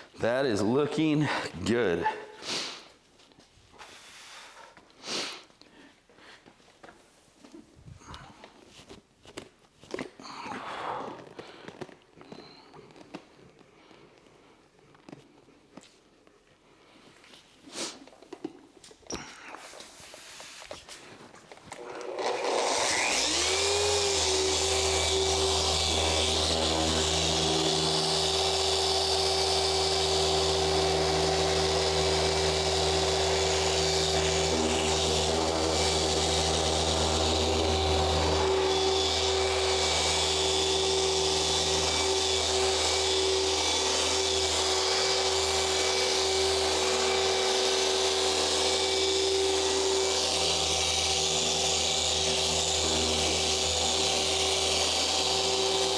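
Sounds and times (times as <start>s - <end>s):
electric polisher spinning: 21.7s - 55.9s.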